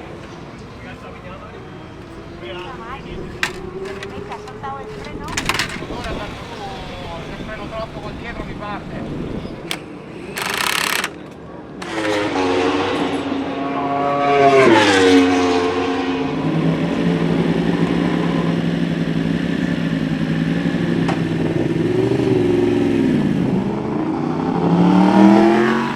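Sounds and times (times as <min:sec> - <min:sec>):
racing motorcycle engine revving: 0:11.8 - 0:25.9.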